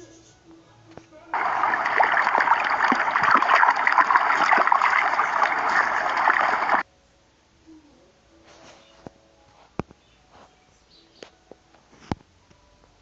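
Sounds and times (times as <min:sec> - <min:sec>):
water running and splashing: 0:01.3 - 0:06.8.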